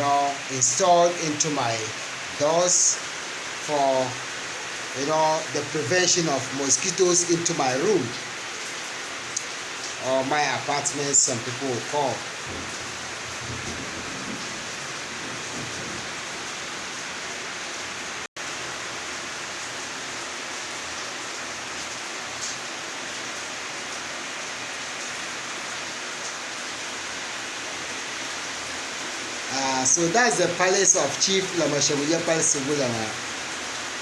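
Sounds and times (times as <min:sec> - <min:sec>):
rain hissing: 0:00.0 - 0:34.0.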